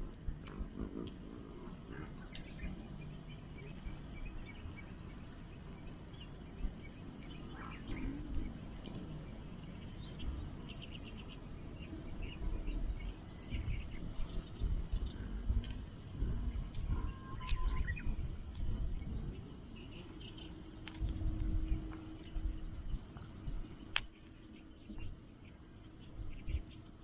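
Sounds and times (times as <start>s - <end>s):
small birds chirping: 0.0s - 27.0s
faint click: 16.7s - 17.7s, 23.9s - 24.4s.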